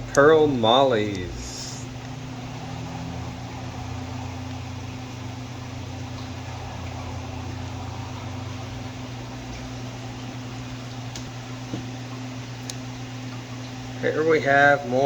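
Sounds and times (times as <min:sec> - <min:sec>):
low electrical hum: 0:00.0 - 0:15.0
even hiss: 0:00.1 - 0:02.0.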